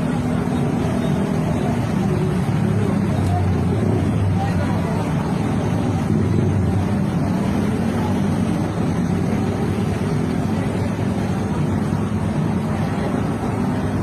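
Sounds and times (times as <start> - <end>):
street traffic: 0.0 - 14.0
vehicle engine rumbling: 0.0 - 14.0.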